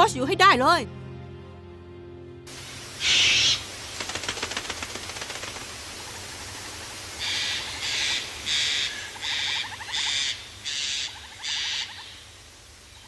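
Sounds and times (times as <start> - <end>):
bird call: 3.0 - 3.7.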